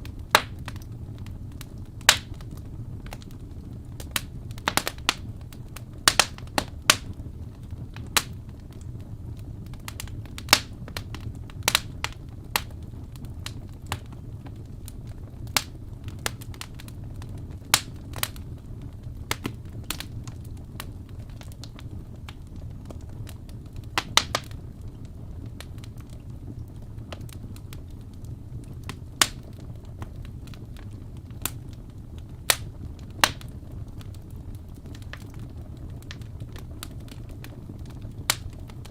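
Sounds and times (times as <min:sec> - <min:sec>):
logs crackling and popping: 0:00.0 - 0:38.9
low rumble of flames: 0:00.0 - 0:38.9.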